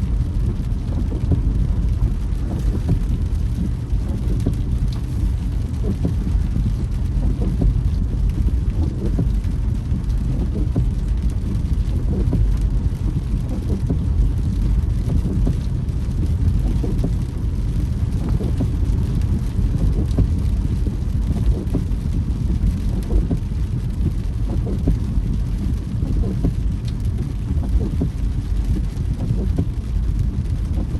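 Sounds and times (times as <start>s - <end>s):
car road and engine rumble: 0.0s - 30.9s
rain pattering on car: 0.0s - 30.9s.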